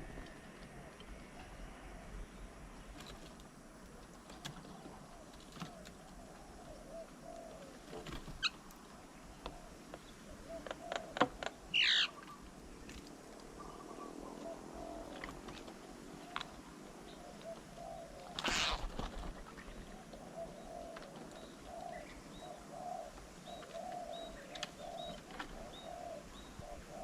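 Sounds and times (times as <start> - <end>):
birds cooing: 0.0 - 27.0
loud falling bird call: 10.8 - 12.2, 18.3 - 19.1.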